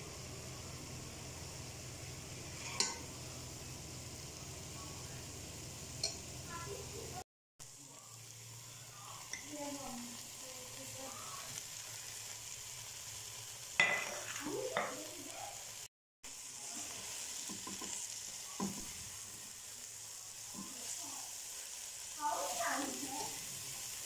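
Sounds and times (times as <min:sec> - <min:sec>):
food sizzling in a pot: 0:00.0 - 0:24.0
spatula scraping a pan: 0:02.4 - 0:03.1, 0:13.8 - 0:15.0.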